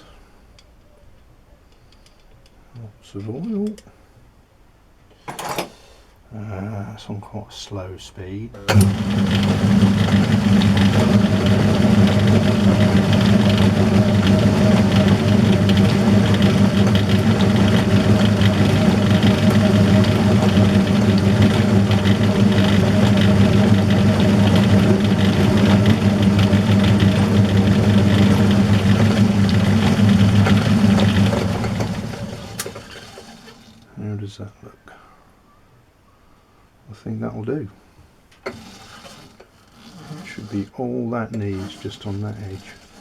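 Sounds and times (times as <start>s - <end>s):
metal lathe humming: 8.6s - 33.9s, 38.4s - 40.7s, 41.3s - 43.0s
knurling tool crackle: 38.5s - 43.0s.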